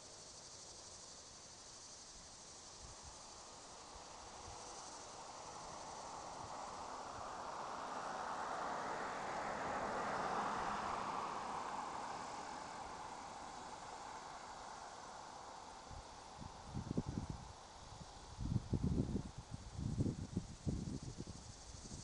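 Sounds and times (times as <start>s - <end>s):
crickets chirping: 0.0s - 22.0s
vehicle passing: 4.8s - 15.6s.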